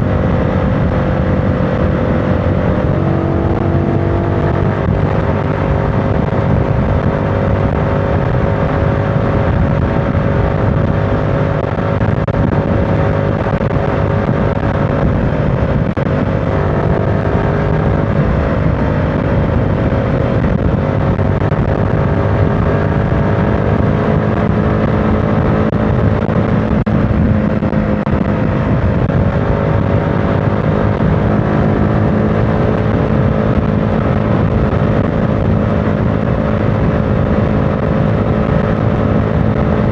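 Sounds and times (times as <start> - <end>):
motorcycle engine running: 0.0 - 39.9
road noise rumble: 0.0 - 39.9.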